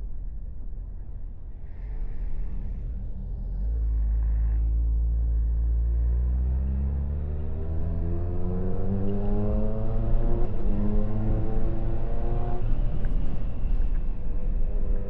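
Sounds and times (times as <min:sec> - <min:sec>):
low rumble: 0:00.0 - 0:15.0
motorcycle engine accelerating: 0:06.4 - 0:13.0.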